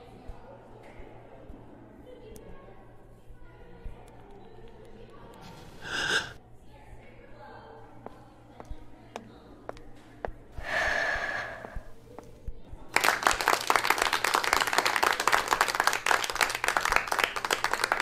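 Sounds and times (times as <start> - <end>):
brief vocal sound: 5.8 - 6.4
group clapping: 12.9 - 18.0.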